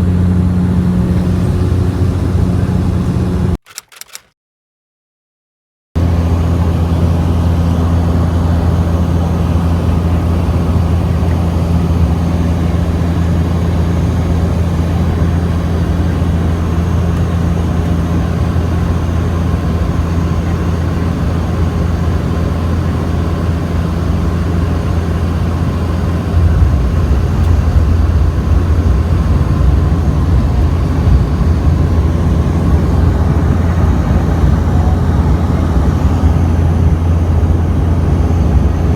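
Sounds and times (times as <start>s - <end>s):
propeller drone in cabin: 0.0s - 4.3s, 6.0s - 38.9s
rushing noise: 26.2s - 38.3s.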